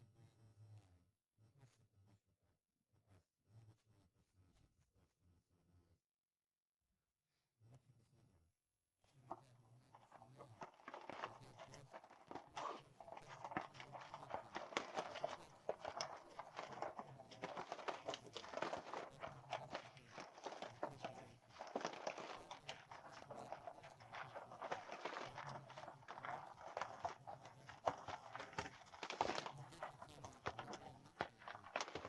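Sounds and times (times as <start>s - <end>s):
faint clicks knocks and crunches: 9.3s - 32.0s.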